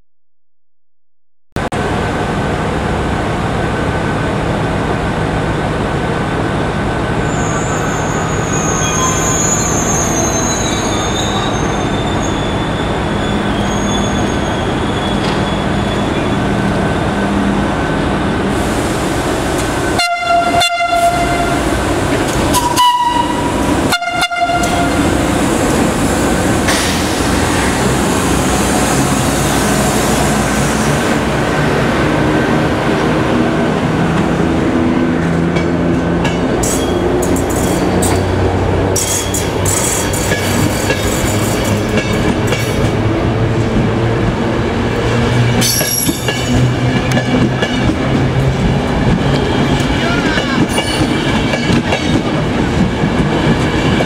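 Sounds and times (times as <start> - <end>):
high wheel squeal: 7.2 - 16.7, 45.6 - 46.6
two-tone locomotive horn blasts: 19.9 - 21.8, 22.5 - 25.2
train wheels clattering: 39.0 - 43.0, 45.4 - 54.0.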